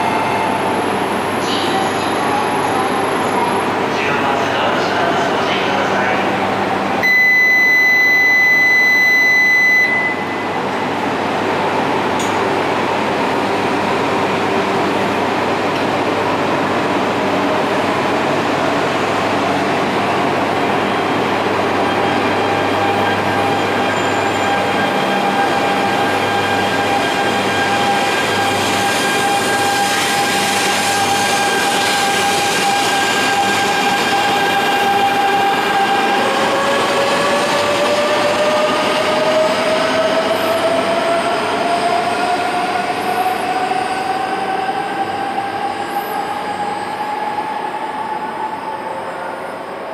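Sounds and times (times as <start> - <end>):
electrical whine from train: 0.0 - 49.9
train hum: 10.4 - 49.9.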